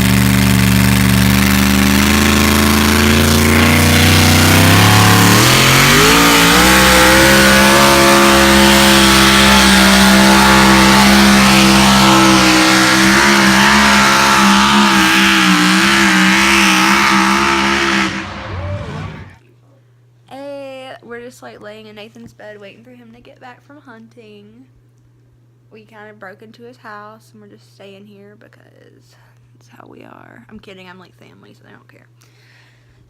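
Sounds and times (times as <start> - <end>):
pulling vehicle engine revving: 0.0 - 19.4.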